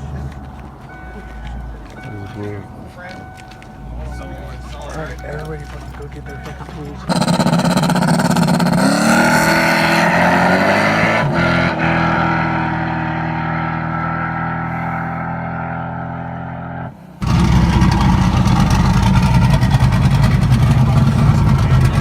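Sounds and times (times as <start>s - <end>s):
car engine revving: 6.8s - 22.0s.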